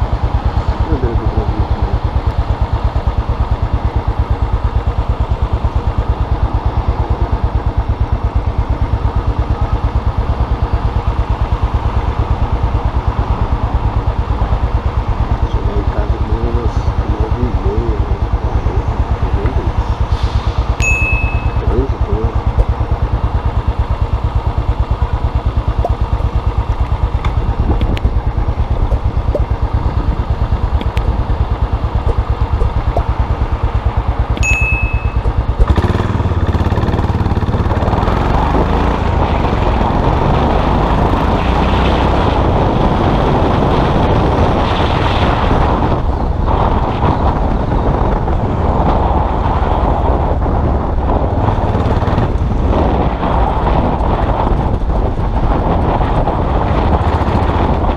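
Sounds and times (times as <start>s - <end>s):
motorcycle engine pulsing: 0.0s - 41.4s
rushing wind noise: 0.0s - 57.9s.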